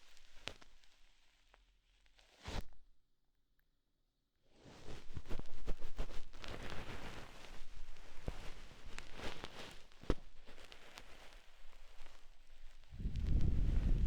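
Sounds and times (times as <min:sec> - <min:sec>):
scratchy rustle on microphone: 0:04.6 - 0:14.0.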